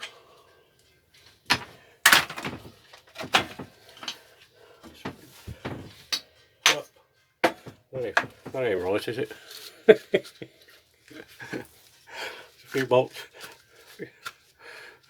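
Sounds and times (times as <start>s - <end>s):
tools and engine parts clunking: 1.5s - 6.8s, 7.4s - 9.0s.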